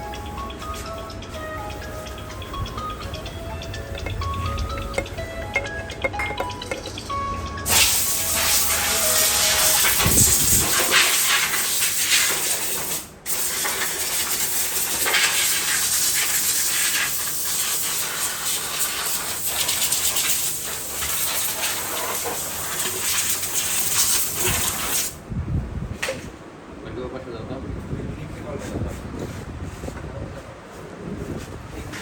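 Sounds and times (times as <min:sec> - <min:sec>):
loud steady hissing: 0:01.7 - 0:25.2.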